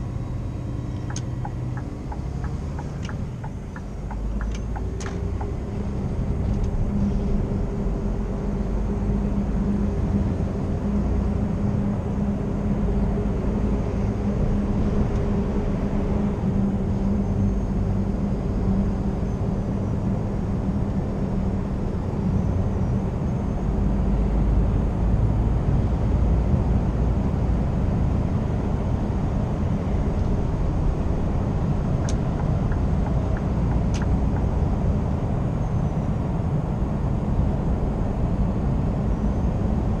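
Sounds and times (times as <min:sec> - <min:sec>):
road noise: 0:00.0 - 0:40.0
truck diesel engine drone: 0:00.0 - 0:40.0
faint clicks: 0:01.0 - 0:05.5.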